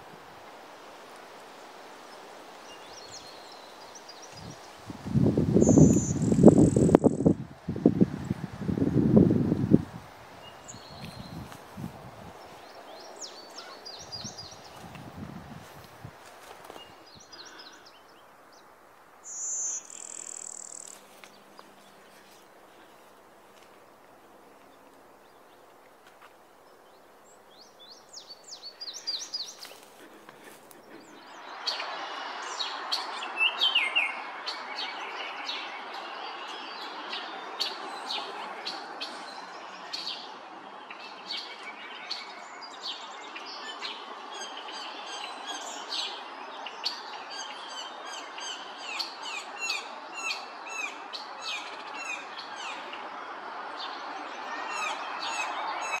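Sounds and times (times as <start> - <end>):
steady rushing noise: 0.0 - 17.6
birds chirping and calling: 3.0 - 7.4, 10.4 - 15.8, 19.3 - 23.7.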